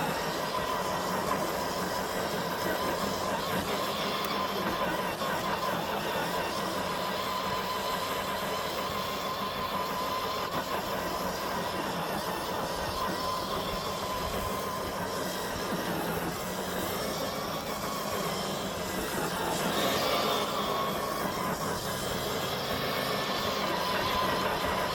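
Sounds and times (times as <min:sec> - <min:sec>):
electric motor and gearbox whining: 0:00.0 - 0:24.9.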